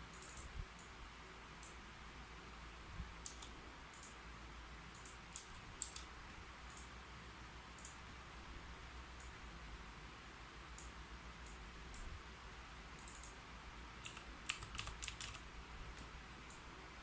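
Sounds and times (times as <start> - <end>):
faint room hiss: 0.0 - 17.0
keyboard keys clicking: 13.0 - 13.4, 14.0 - 15.4.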